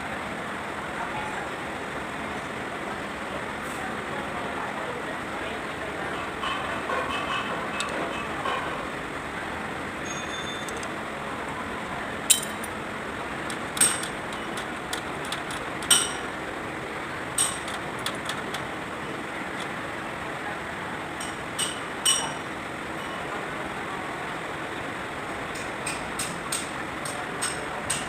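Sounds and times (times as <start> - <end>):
metal objects clinking: 12.3 - 12.7.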